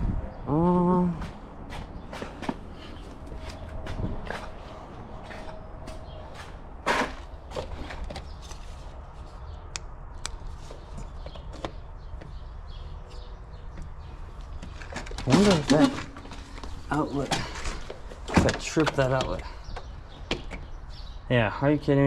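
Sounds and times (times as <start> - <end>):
handling clicks and knocks: 13.7 - 20.8.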